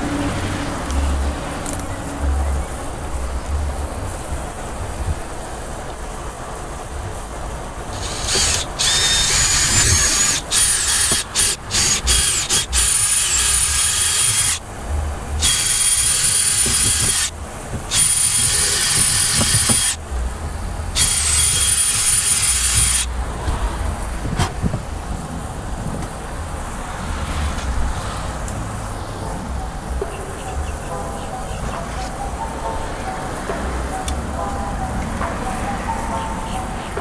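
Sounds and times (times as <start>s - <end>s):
power drill motor whining: 7.9s - 14.6s, 15.4s - 20.0s, 20.9s - 23.1s.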